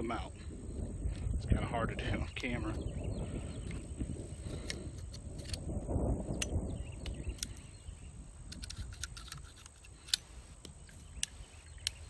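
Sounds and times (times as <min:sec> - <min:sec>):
revolver metallic clicks: 0:04.5 - 0:07.8, 0:08.4 - 0:12.0.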